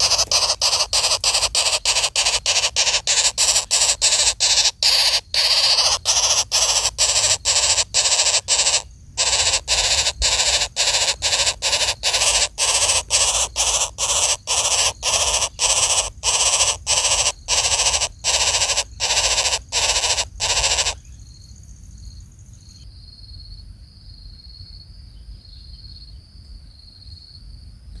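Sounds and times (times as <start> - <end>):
bird rasping calls: 0.0 - 21.0.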